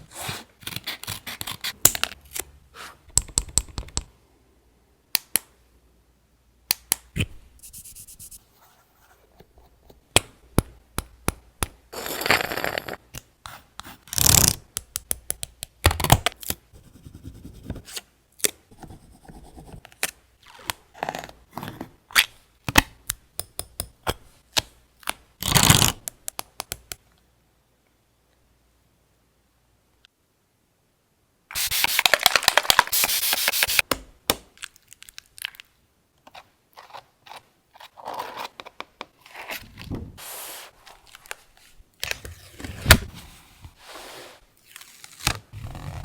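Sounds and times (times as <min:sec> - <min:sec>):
tools clicking and tapping: 0:23.3 - 0:24.2.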